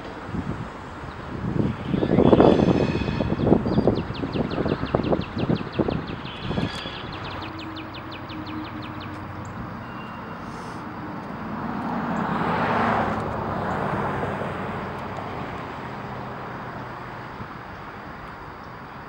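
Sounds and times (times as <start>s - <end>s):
rush of noise: 0.0s - 13.6s
diesel locomotive engine droning: 0.0s - 19.0s.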